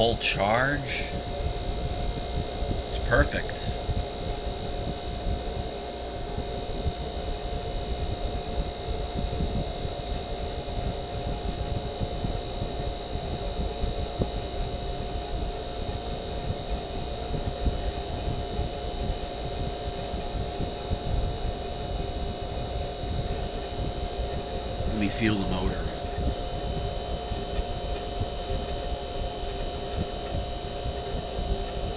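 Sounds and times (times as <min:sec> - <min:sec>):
faint whine: 0:00.0 - 0:11.7, 0:22.8 - 0:30.4
air conditioner humming: 0:00.0 - 0:31.9.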